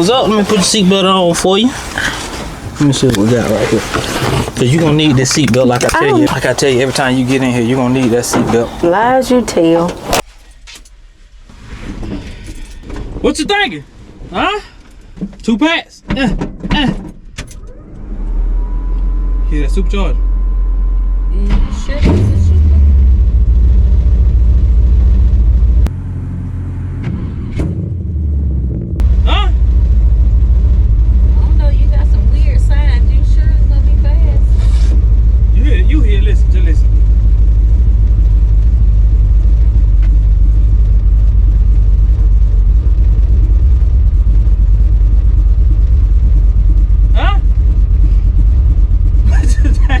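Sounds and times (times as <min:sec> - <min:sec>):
engine choppy low rumble: 0:00.0 - 0:50.0.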